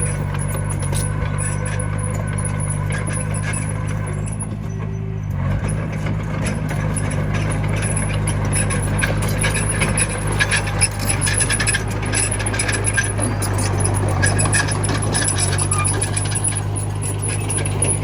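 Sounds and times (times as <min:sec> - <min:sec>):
metallic clicking and clanking: 0:00.0 - 0:04.6, 0:05.8 - 0:18.0
diesel engine running: 0:00.0 - 0:18.0.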